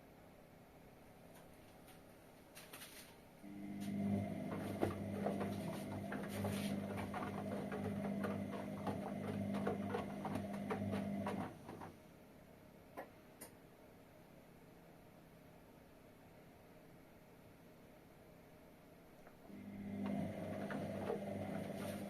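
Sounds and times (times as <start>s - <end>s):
washing machine humming: 3.4s - 12.3s, 19.2s - 22.0s.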